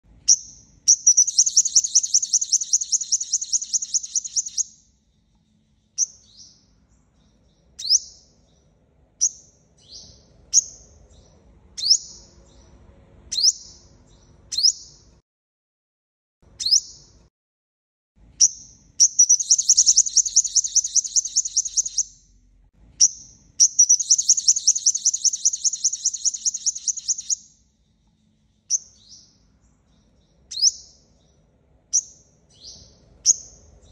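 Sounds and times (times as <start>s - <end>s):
bird high trills: 0.9s - 4.6s, 19.0s - 22.2s, 23.6s - 27.4s
bird sharp chips: 1.1s - 4.6s, 19.2s - 22.1s, 23.7s - 27.4s.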